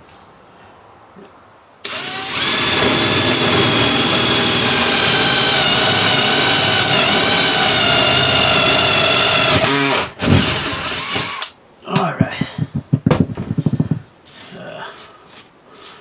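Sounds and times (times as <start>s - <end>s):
electric drill boring: 1.8s - 11.5s.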